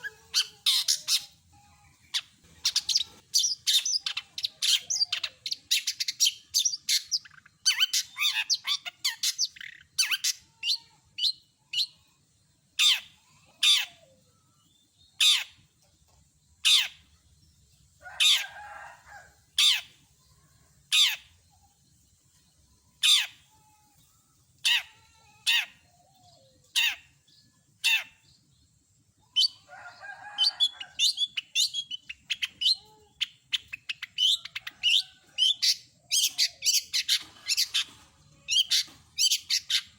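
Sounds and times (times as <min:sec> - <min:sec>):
bird harsh rasping calls: 0:00.0 - 0:01.4.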